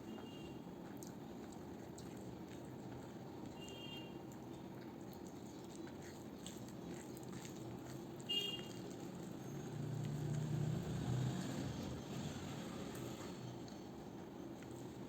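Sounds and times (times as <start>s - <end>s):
faint chewing: 0.1s - 15.0s.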